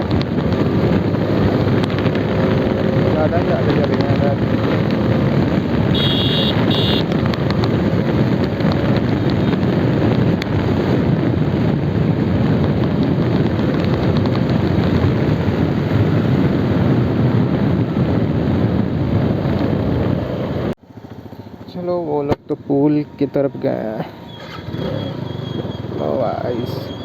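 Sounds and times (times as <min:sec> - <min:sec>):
wind buffeting microphone: 0:00.0 - 0:21.7
motorcycle engine: 0:00.0 - 0:27.0.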